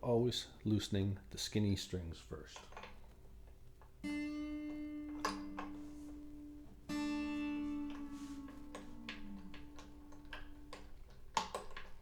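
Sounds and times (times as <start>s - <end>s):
guitar string pitch sliding down: 4.0s - 11.0s
acoustic guitar strings ringing: 4.0s - 11.1s.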